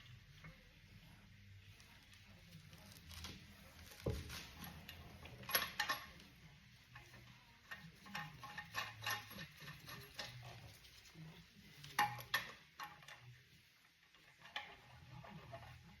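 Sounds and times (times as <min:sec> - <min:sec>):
hand tools clicking and clinking: 0:07.7 - 0:10.6.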